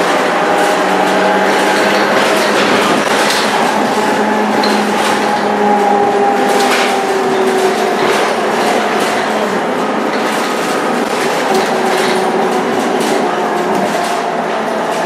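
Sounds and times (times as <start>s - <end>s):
bus engine drone with whine: 0.0s - 15.0s.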